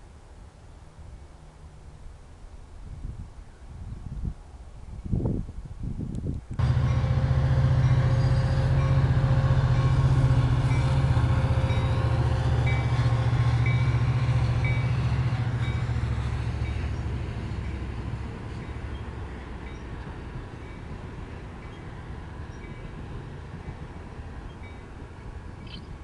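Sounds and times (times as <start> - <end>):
diesel locomotive engine drone: 6.2 - 26.0.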